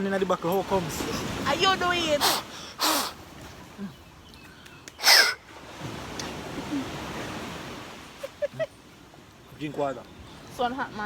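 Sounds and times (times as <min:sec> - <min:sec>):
sea waves washing on beach: 0:00.0 - 0:03.9, 0:05.0 - 0:09.3.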